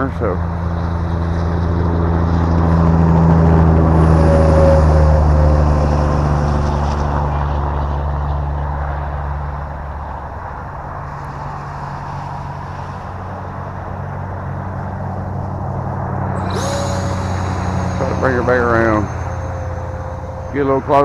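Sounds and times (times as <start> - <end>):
model jet ducted fan: 0.0 - 7.8, 10.4 - 21.0
steady low hum: 10.8 - 21.0.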